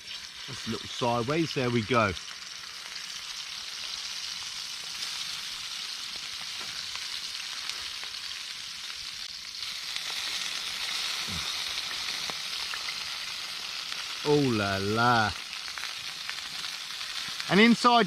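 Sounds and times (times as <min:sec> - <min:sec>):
food sizzling in hot fat: 0:00.0 - 0:18.0.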